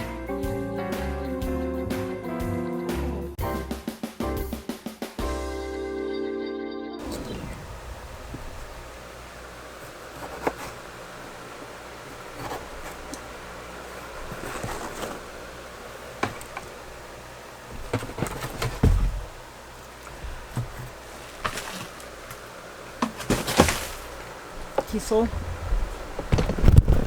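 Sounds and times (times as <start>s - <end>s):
steady low hum: 7.0s - 27.0s
things being handled clattering: 7.0s - 27.0s
heavy thump: 17.7s - 22.0s, 23.0s - 27.0s.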